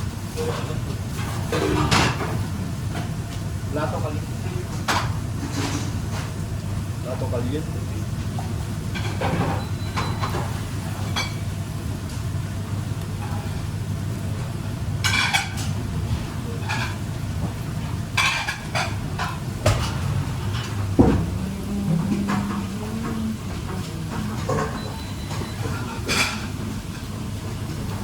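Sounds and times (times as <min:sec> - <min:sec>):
pots and dishes clattering: 0:00.4 - 0:03.1, 0:04.7 - 0:06.4, 0:08.4 - 0:11.5, 0:15.0 - 0:28.0
low hum: 0:19.2 - 0:26.0.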